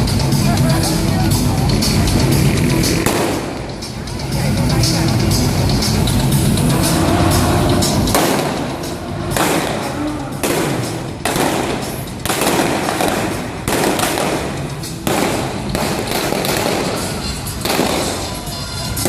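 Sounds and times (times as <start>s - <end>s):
loud pyrotechnic bangs: 2.3s - 4.1s, 5.7s - 19.0s.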